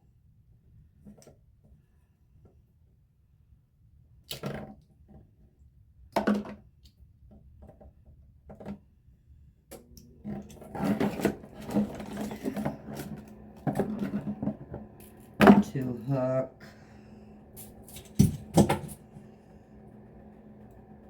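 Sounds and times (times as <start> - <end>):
low hum: 9.7 - 21.0
rustling and clattering: 10.3 - 15.7
knocks of shower head parts: 18.0 - 19.0.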